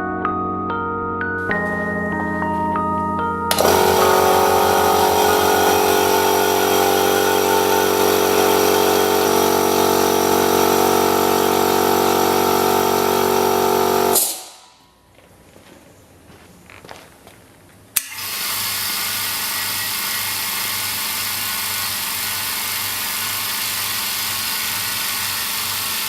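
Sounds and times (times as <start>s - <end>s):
electric air compressor running: 3.5s - 14.8s, 18.0s - 26.0s.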